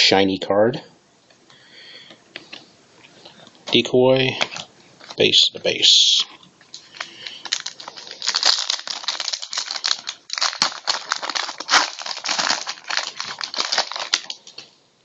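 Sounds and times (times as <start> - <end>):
wrapper crinkling: 6.8 - 14.7.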